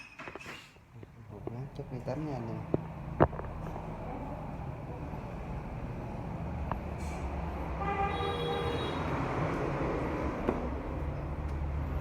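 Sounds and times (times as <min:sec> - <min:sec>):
vehicle horn: 0:07.8 - 0:09.2.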